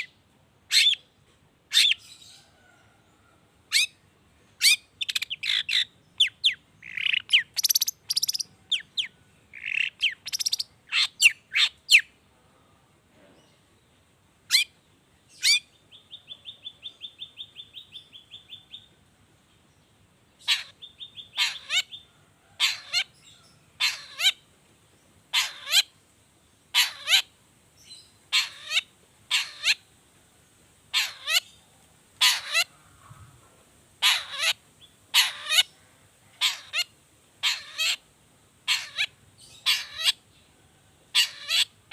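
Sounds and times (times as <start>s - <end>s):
bird trilling: 0.7s - 1.0s, 3.7s - 4.0s, 4.6s - 12.1s, 20.4s - 22.0s, 23.8s - 24.4s, 25.3s - 25.9s, 26.8s - 27.3s, 28.3s - 29.8s, 31.0s - 31.5s, 32.2s - 33.2s, 34.0s - 35.8s, 36.4s - 38.0s, 38.7s - 40.2s, 41.1s - 41.8s
bird singing varied notes: 4.6s - 12.1s.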